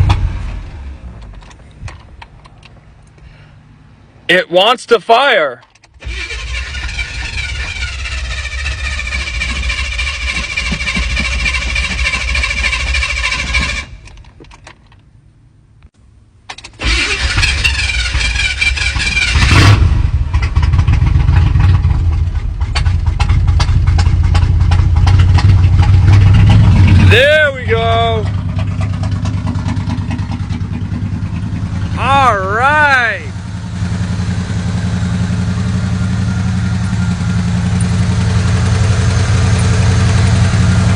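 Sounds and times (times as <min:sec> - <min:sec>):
engine running: 0:00.0 - 0:04.3, 0:05.6 - 0:40.9
starter cranking engine: 0:05.7 - 0:15.0, 0:16.5 - 0:32.9, 0:34.3 - 0:40.9.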